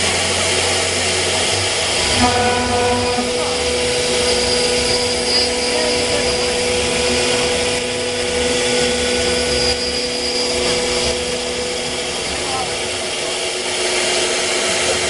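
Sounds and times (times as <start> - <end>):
machine noise: 0.0 - 15.0
router spindle whine: 0.0 - 15.0.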